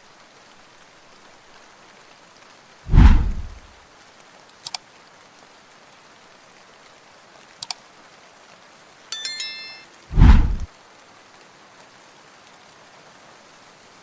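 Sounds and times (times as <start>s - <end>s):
steady rain: 0.0s - 14.0s
shimmering high chime: 9.1s - 10.1s.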